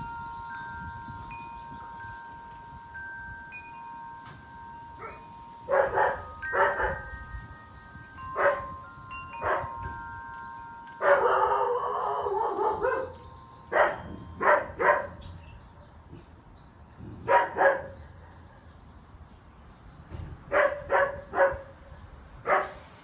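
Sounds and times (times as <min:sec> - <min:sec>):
wind chimes ringing: 0:00.0 - 0:15.9
dog barking: 0:05.7 - 0:07.0, 0:08.4 - 0:08.7, 0:11.0 - 0:15.2, 0:17.3 - 0:18.4, 0:20.5 - 0:21.6, 0:22.5 - 0:22.8.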